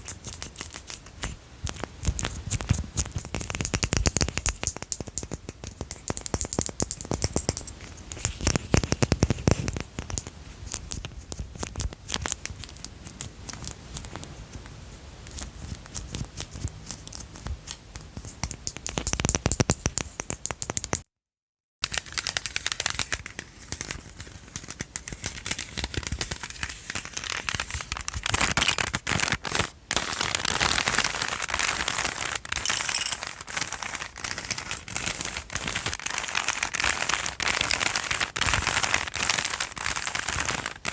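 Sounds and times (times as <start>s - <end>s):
crinkling and crackling: 21.9s - 40.9s.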